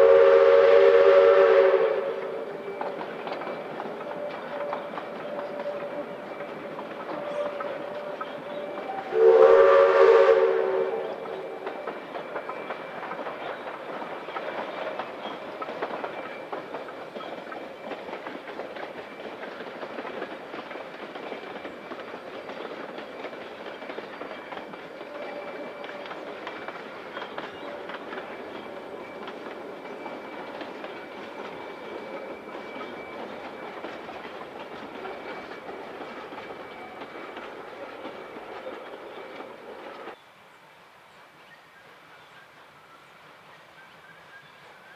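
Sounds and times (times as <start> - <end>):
steam locomotive whistle: 0.0 - 13.3, 24.3 - 34.4
train clattering along track: 0.0 - 40.2, 41.1 - 44.9.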